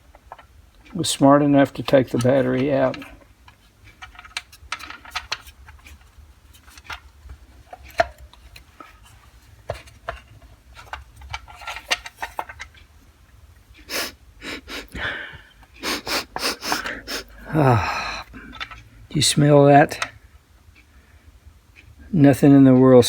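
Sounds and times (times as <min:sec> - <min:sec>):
person sniffing: 0:13.8 - 0:18.4.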